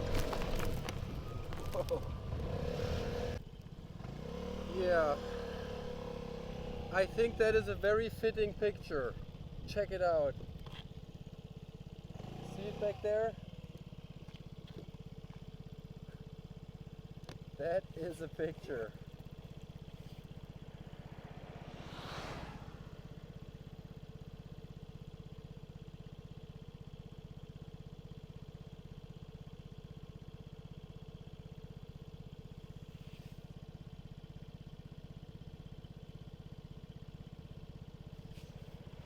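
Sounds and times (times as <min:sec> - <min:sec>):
scooter engine running: 0:00.0 - 0:21.8, 0:22.6 - 0:39.0
rush of noise: 0:21.1 - 0:23.2.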